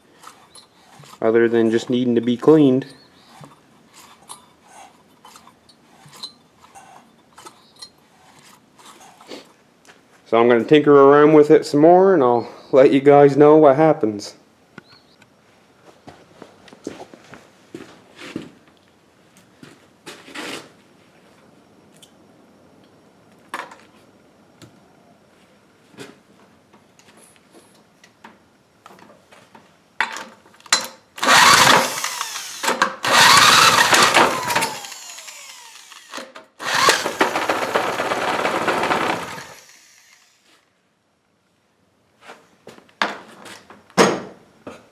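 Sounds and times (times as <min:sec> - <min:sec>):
small power tool running: 0:31.2 - 0:40.5.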